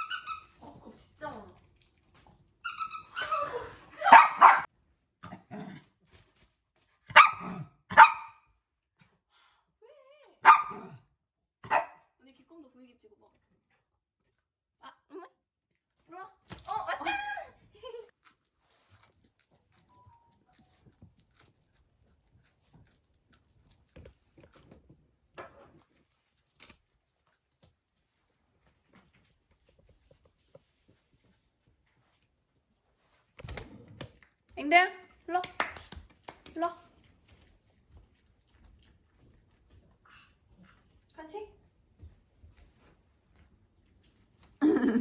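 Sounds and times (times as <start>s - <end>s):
dog barking: 4.0s - 4.7s, 7.1s - 8.4s, 10.4s - 11.0s, 11.6s - 12.1s
dog claws clicking on floor: 22.6s - 30.8s, 33.2s - 40.0s.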